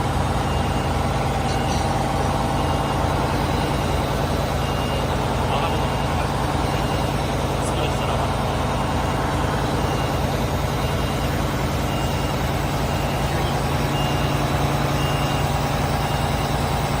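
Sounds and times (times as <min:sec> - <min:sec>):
diesel truck engine idling: 0:00.0 - 0:17.0
short high beeps: 0:00.4 - 0:08.0.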